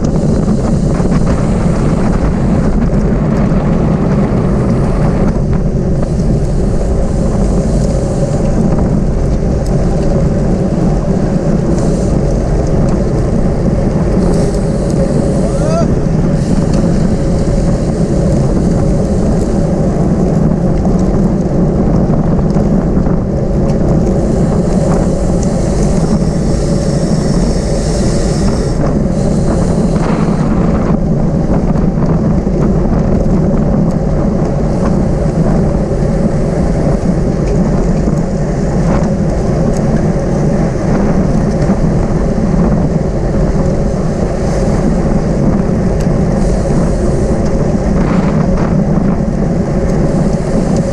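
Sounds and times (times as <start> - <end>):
wind buffeting microphone: 0.0 - 50.9.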